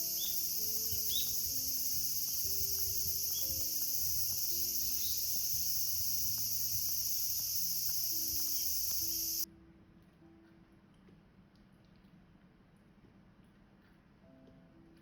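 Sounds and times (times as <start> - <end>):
crickets shrilling: 0.0 - 9.4
faint ticks: 0.0 - 9.5
soft background music: 0.0 - 15.0.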